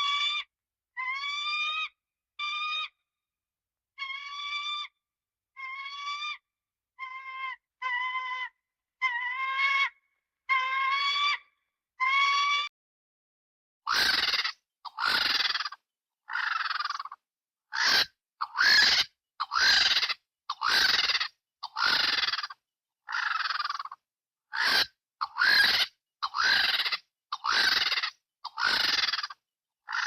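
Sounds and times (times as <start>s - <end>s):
cartoon bird calls: 13.9s - 17.2s, 17.8s - 24.0s, 24.6s - 30.0s.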